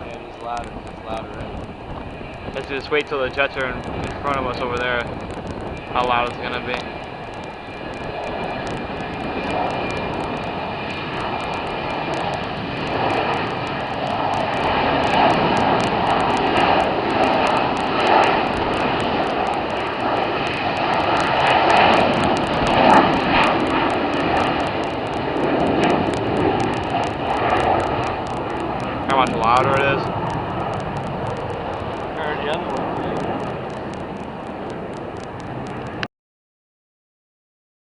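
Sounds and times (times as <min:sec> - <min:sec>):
jet engines roaring: 0:00.0 - 0:36.1.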